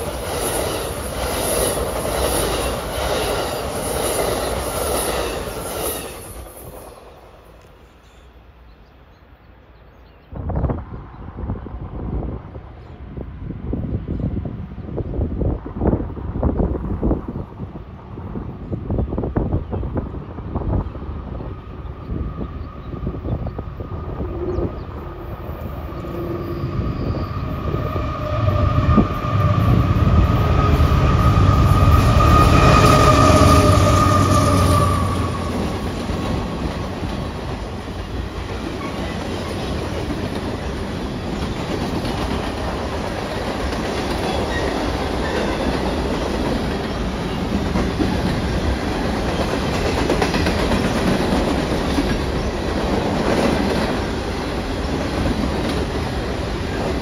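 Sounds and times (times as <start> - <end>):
train wheels clattering on rails: 0.0 - 7.0, 27.8 - 57.0.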